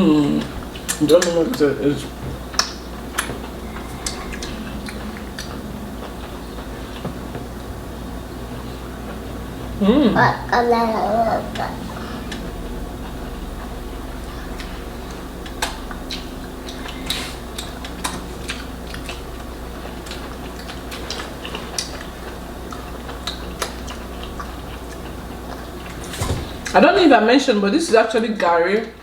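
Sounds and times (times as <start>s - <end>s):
low hum: 1.7s - 10.6s, 11.2s - 21.0s.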